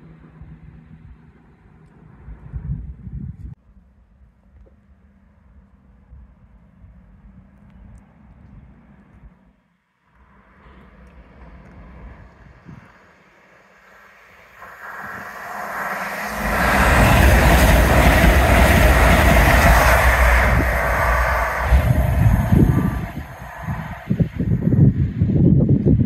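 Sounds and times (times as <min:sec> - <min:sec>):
electric train passing at speed: 0:10.2 - 0:26.0.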